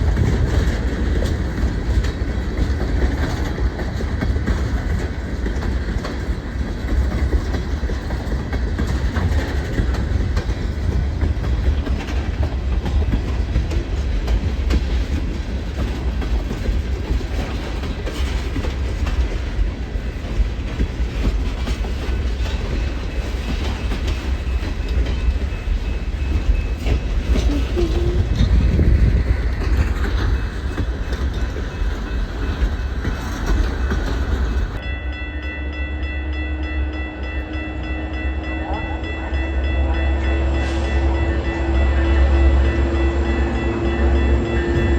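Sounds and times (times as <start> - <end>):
wheels clattering over rail joints: 0.0 - 34.9
train rumbling past: 0.0 - 44.9.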